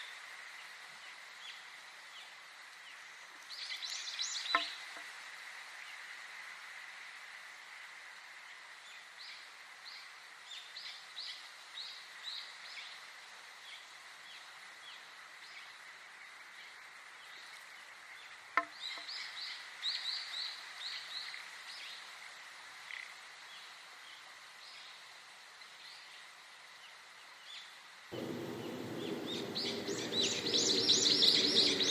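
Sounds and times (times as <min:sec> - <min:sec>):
soft hiss: 0:00.0 - 0:31.9
bird chirping: 0:28.2 - 0:31.9.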